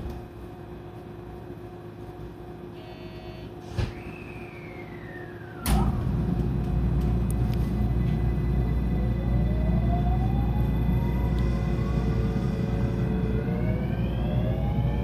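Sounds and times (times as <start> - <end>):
train electrical hum: 0.0 - 15.0
train rumbling: 3.6 - 15.0
rising electric motor whine: 3.9 - 15.0.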